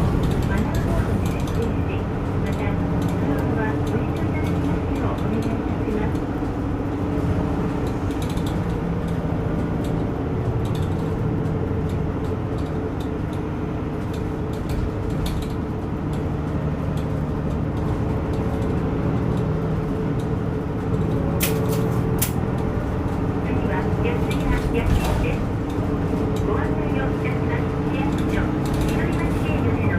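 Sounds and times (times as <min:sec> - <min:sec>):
bus engine drone: 0:00.0 - 0:29.9
road noise: 0:00.0 - 0:29.9
light rattling clicks: 0:00.2 - 0:01.8, 0:02.4 - 0:06.5, 0:07.8 - 0:19.5, 0:24.2 - 0:29.8.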